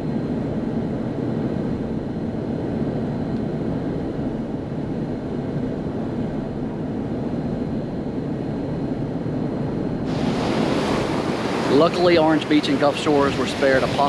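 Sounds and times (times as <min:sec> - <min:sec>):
wind on the microphone: 0:00.0 - 0:14.0
surf hissing: 0:10.1 - 0:14.0.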